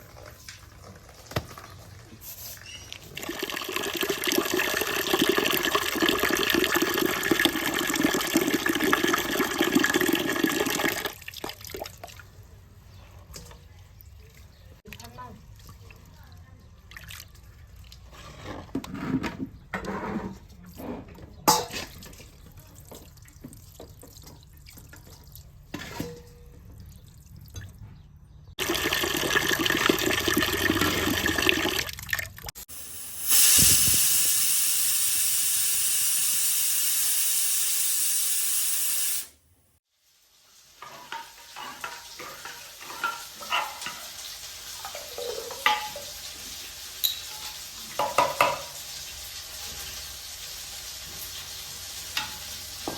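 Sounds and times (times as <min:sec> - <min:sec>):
water running from a tap: 0:03.0 - 0:11.8, 0:28.6 - 0:39.3
pots and utensils clinking: 0:21.0 - 0:23.1, 0:23.8 - 0:26.8, 0:40.8 - 0:49.0, 0:51.1 - 0:52.9.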